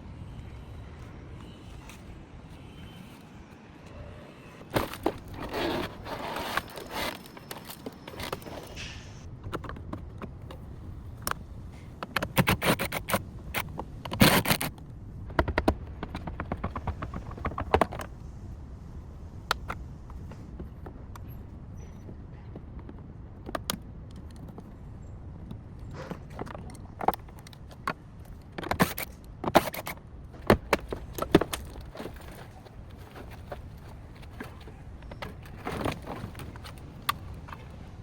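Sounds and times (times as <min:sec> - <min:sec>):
car parts being handled: 0:04.6 - 0:14.7, 0:26.0 - 0:38.0
tools clicking and knocking: 0:12.0 - 0:18.1, 0:26.1 - 0:37.7.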